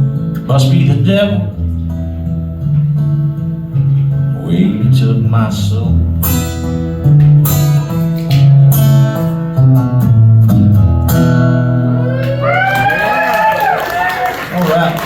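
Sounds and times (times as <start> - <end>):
acoustic guitar strumming: 0.0 - 12.1.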